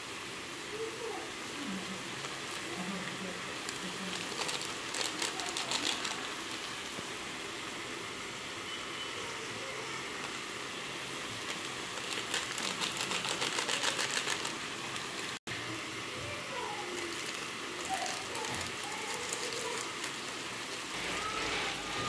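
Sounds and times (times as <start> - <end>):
vegetables sizzling in a pan: 0.0 - 22.0
rapid even ticking: 12.0 - 14.6.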